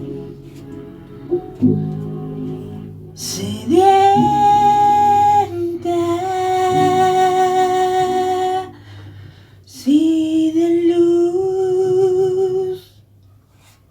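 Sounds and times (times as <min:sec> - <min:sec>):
person singing sustained notes: 0:00.0 - 0:08.8
faint low accompaniment: 0:00.0 - 0:11.4.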